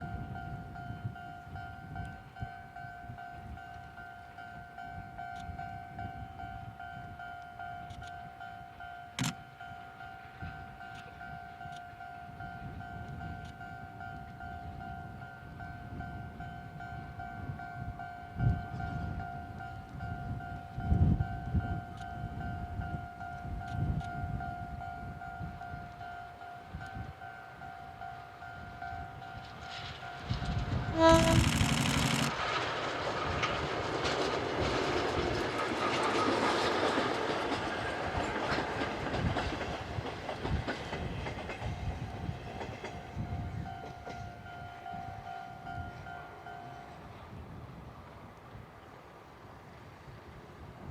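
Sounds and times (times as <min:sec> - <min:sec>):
wind rumble on microphone: 0:00.0 - 0:04.0, 0:10.4 - 0:27.2, 0:28.6 - 0:32.6, 0:33.2 - 0:46.2, 0:46.8 - 0:48.7.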